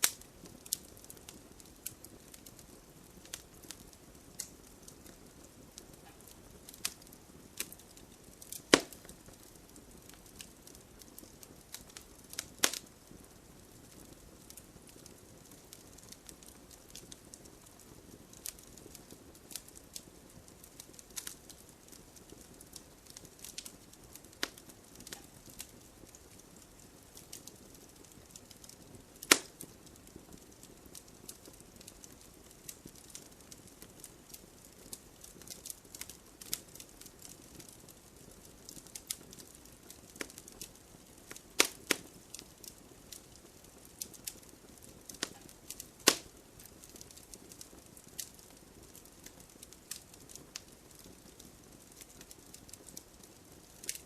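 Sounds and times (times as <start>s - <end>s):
wood fire crackling: 0.0s - 54.0s
loud sharp fire pops: 7.6s - 9.4s, 29.2s - 29.7s, 41.3s - 42.1s, 45.1s - 47.1s.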